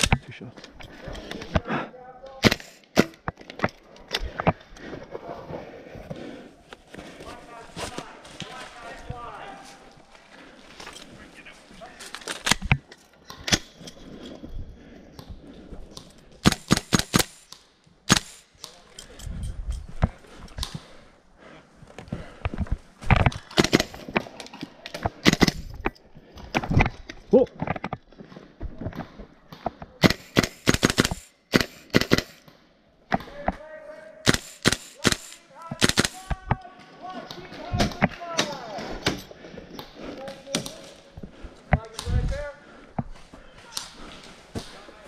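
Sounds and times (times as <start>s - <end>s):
airsoft gun shots: 34.3s - 36.2s.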